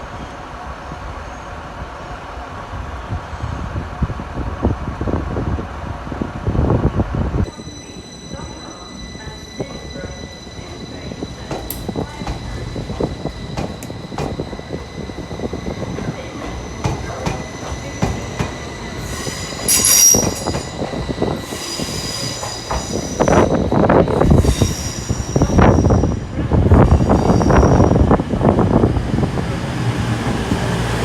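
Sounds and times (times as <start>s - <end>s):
train rumble: 0.0s - 31.0s
train wheels squealing: 7.4s - 28.2s.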